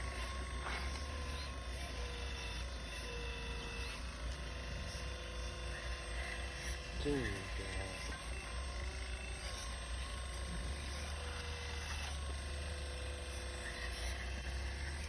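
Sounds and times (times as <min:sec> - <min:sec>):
excavator motors whirring: 0:00.0 - 0:15.0.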